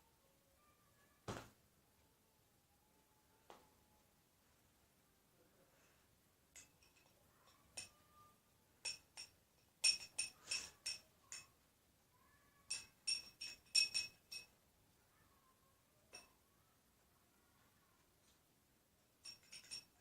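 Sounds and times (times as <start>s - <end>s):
utensil clinking against bowl: 8.8s - 11.5s, 12.7s - 14.5s, 19.2s - 20.0s.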